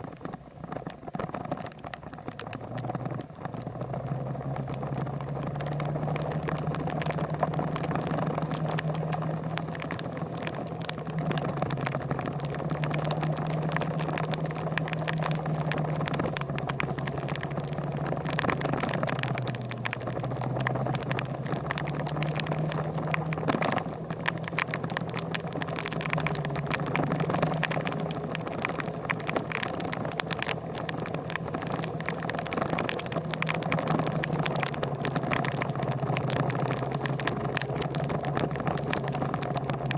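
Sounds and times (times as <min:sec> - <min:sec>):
sharp ticks and crackles: 0:00.0 - 0:39.9.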